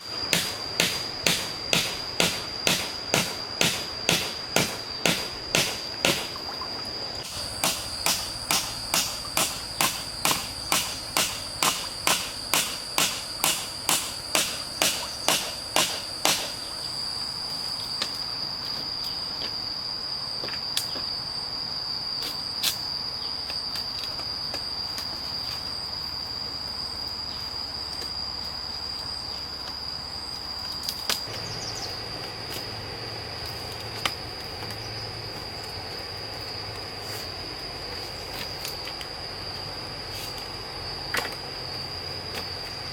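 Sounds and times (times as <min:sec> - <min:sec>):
high-pitched insect drone: 0:00.0 - 0:42.9
hand tool striking wood: 0:00.3 - 0:06.4, 0:07.2 - 0:16.6.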